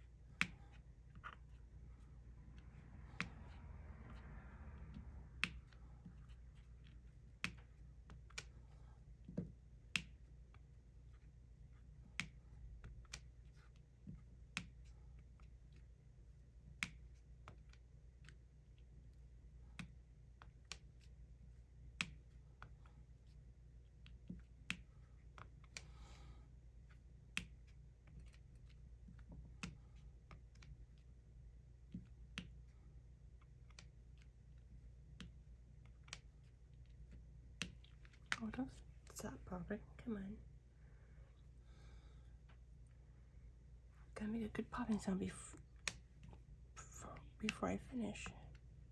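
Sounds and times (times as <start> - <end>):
low steady hum: 0.0 - 48.9.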